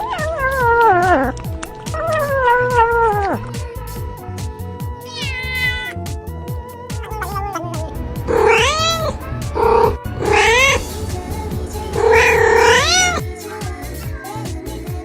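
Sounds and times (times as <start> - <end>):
cat meowing: 0.0 - 1.3, 2.0 - 3.4, 5.0 - 6.0, 7.0 - 10.9, 11.8 - 13.2
background music with beat: 9.2 - 15.0.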